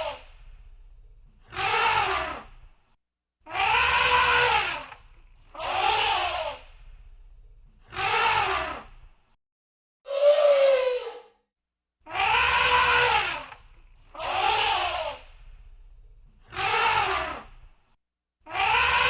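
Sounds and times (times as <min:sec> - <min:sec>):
low rumble: 0:00.3 - 0:01.4
elephant trumpeting: 0:03.5 - 0:04.9, 0:12.1 - 0:13.5.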